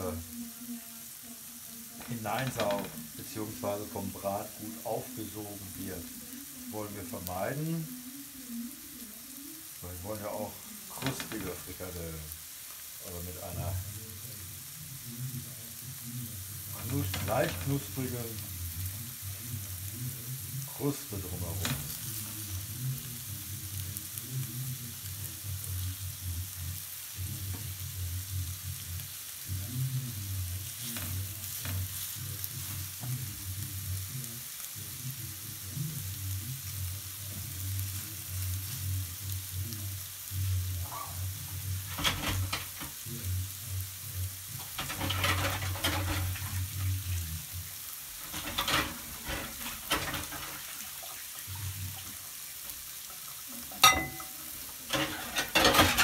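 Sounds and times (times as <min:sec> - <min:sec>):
meatballs sizzling in a pan: 0:00.0 - 0:56.0
oil crackling and spattering: 0:09.8 - 0:13.3, 0:40.8 - 0:43.5, 0:44.1 - 0:53.9, 0:54.5 - 0:56.0.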